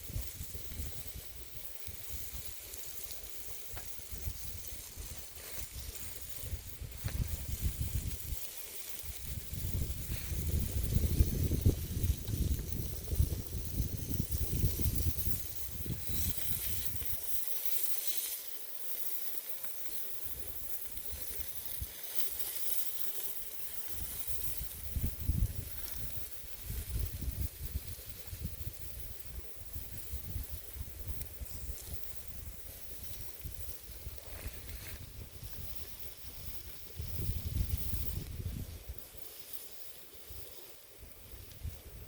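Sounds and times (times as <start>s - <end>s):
steady outdoor hiss: 0.0s - 42.0s
wind buffeting microphone: 4.0s - 8.4s, 9.2s - 17.1s, 24.0s - 39.0s.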